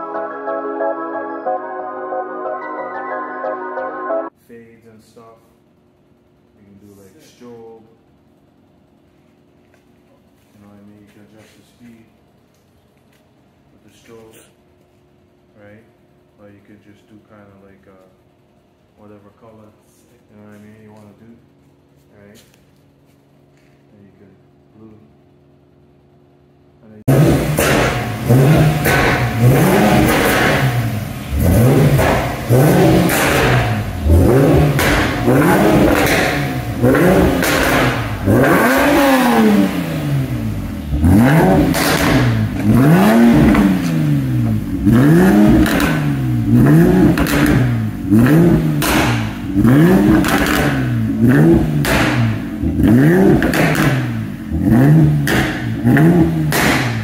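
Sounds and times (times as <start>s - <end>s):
car engine revving: 27.1s - 57.0s
exhaust cracks: 27.1s - 57.0s.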